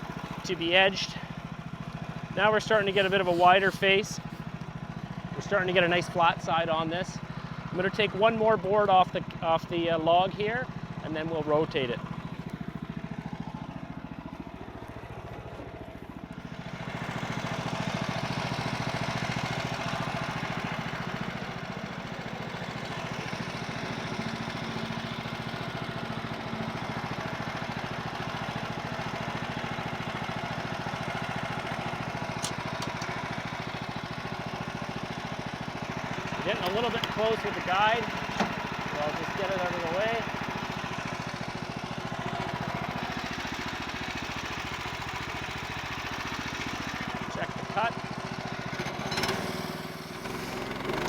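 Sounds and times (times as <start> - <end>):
sawmill engine running: 0.0 - 51.0
band blade cutting log: 2.6 - 4.6.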